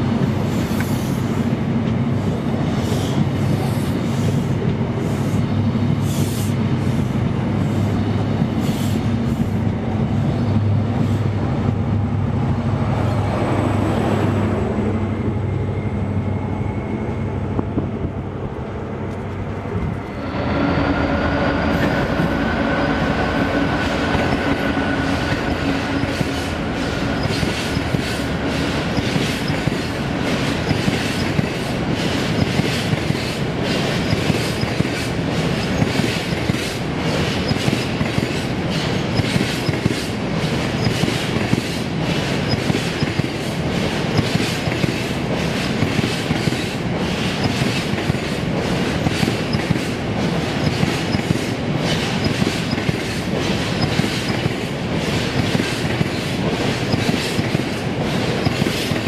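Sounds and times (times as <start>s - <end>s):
diesel locomotive engine passing: 0.0s - 59.0s
wheels clickety-clack on track: 21.6s - 59.0s.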